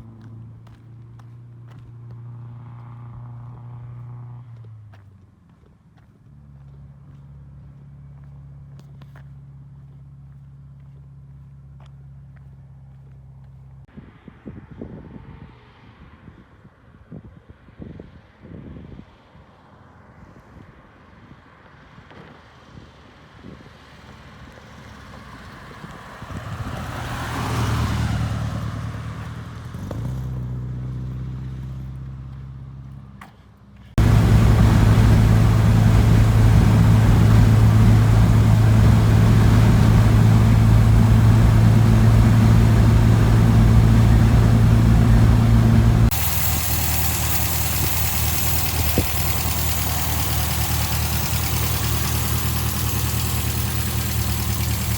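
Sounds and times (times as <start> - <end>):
car driving past: 25.6 - 31.2, 34.0 - 46.6
car engine running steady: 33.8 - 54.9.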